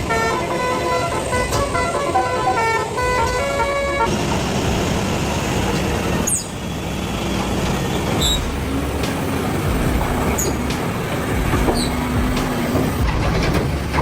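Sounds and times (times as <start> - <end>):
heavy vehicle rumbling: 0.0 - 14.0
high-pitched squeaks: 7.5 - 14.0.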